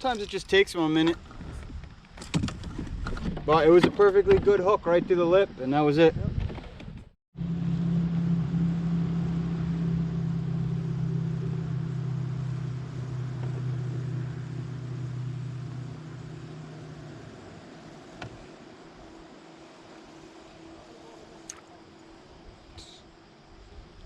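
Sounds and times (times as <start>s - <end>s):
motor engine droning: 7.4s - 23.0s.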